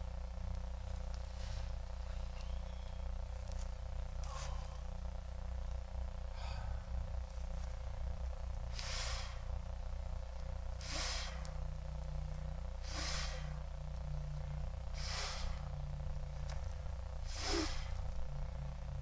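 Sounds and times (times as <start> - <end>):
steady low rumble: 0.0 - 19.0
heavy breathing: 6.2 - 7.2, 8.6 - 9.7, 10.7 - 18.6.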